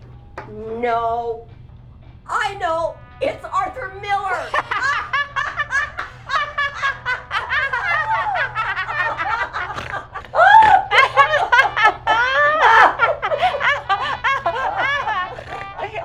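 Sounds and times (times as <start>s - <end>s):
loud laughter: 4.3s - 16.0s.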